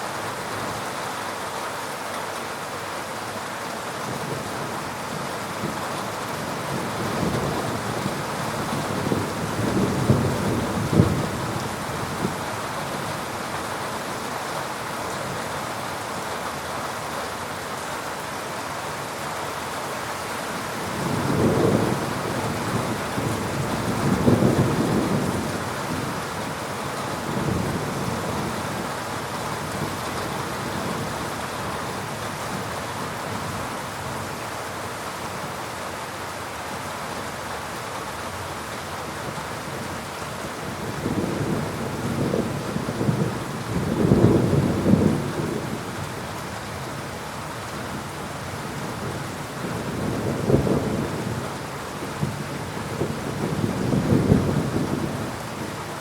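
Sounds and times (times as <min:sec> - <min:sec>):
heavy rain falling: 0:00.0 - 0:56.0
thunder rumbling: 0:06.7 - 0:12.4, 0:20.9 - 0:26.2, 0:40.7 - 0:45.9, 0:52.2 - 0:55.4.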